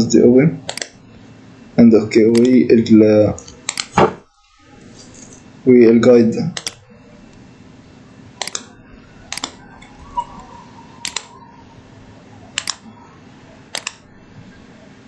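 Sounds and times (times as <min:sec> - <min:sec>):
computer mouse clicks: 0:00.7 - 0:01.0, 0:02.3 - 0:02.6, 0:03.4 - 0:04.0, 0:06.6 - 0:06.8, 0:08.4 - 0:08.7, 0:09.3 - 0:09.9, 0:11.0 - 0:11.3, 0:12.6 - 0:12.8, 0:13.7 - 0:14.0.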